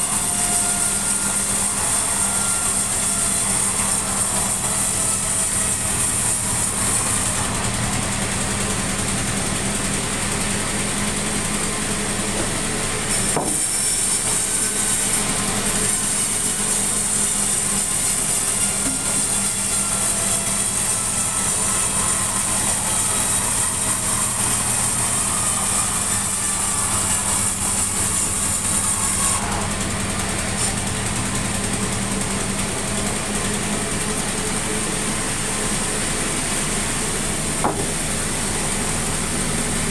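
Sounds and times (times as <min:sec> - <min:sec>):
sawmill machinery running: 0:00.0 - 0:39.9
short knock: 0:37.6 - 0:38.0.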